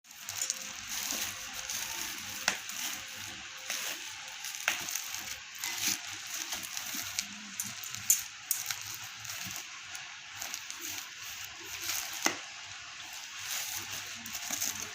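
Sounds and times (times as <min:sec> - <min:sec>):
packaging rustling: 0:00.1 - 0:14.9.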